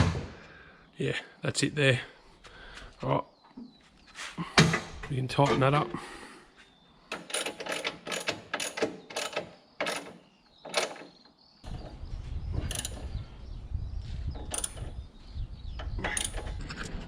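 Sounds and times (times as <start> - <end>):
ratchet wrench clicking: 12.7 - 13.0, 14.6 - 14.8.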